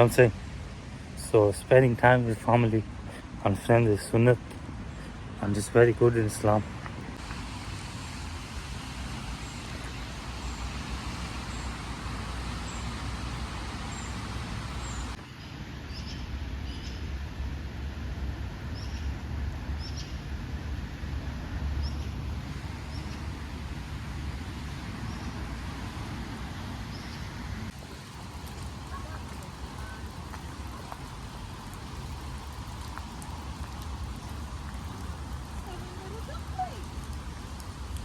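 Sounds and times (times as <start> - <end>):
birds chirping: 4.9 - 15.2, 26.8 - 38.0.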